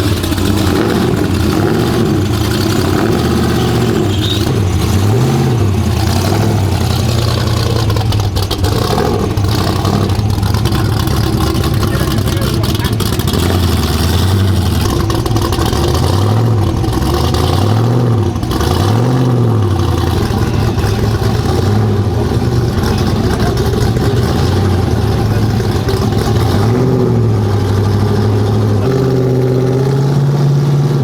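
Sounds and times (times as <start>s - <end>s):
vehicle engine revving: 0.0s - 31.0s.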